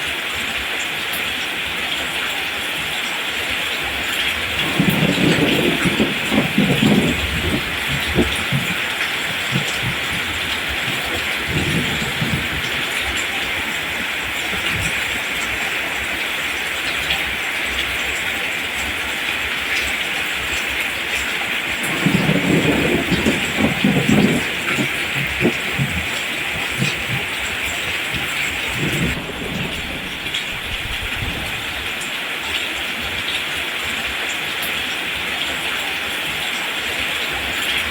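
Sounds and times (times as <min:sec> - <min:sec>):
rain falling on plants: 0:00.0 - 0:37.9
low rumbles: 0:21.8 - 0:32.0.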